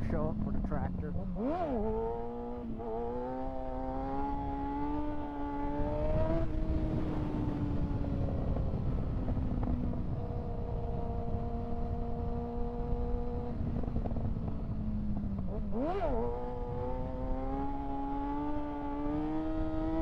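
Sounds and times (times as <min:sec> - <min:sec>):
motorcycle engine accelerating: 0:00.0 - 0:20.0
wind noise: 0:04.0 - 0:18.2.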